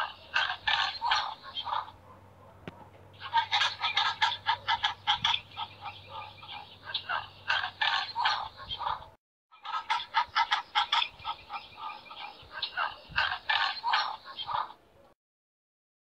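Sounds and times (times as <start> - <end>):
pelicans calling: 0.0 - 14.8.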